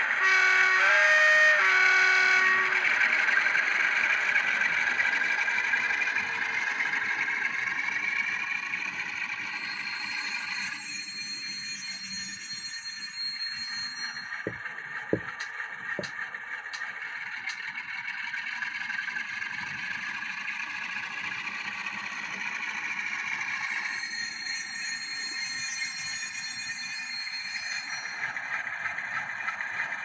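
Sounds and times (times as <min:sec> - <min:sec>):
model train horn: 0:00.0 - 0:03.5
hissy engine sound from speaker: 0:00.0 - 0:30.0.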